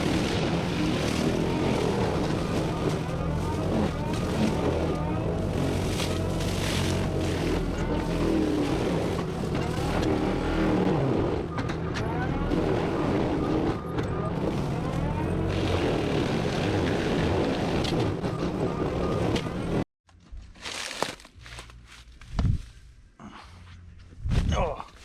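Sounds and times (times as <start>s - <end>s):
diesel engine and mulching drum: 0.0s - 19.8s.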